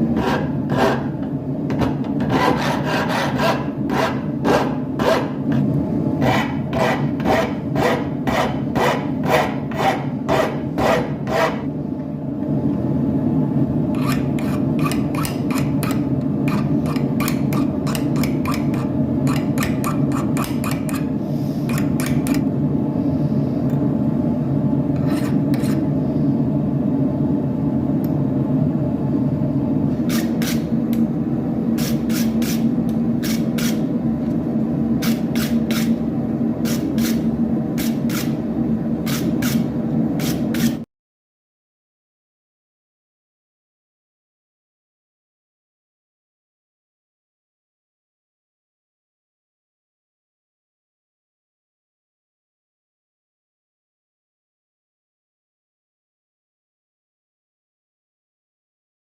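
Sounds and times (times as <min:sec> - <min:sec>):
hand file rasping on metal: 0:02.3 - 0:05.3.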